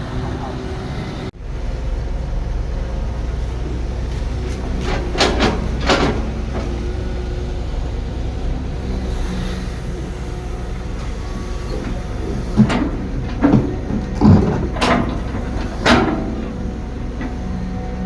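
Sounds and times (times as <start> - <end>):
diesel machinery rumbling: 0.0 - 18.0.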